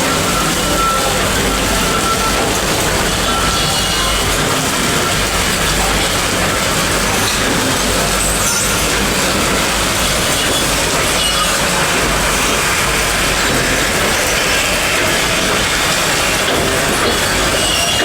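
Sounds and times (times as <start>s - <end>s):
train rumbling on track: 0.0s - 18.0s.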